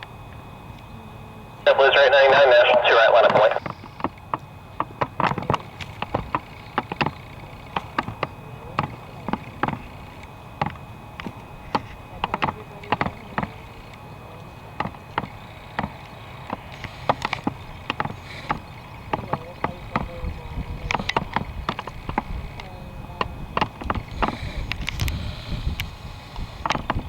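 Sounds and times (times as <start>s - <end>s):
low radio hiss: 1.0s - 4.0s
radio static clicks and pops: 1.7s - 3.8s.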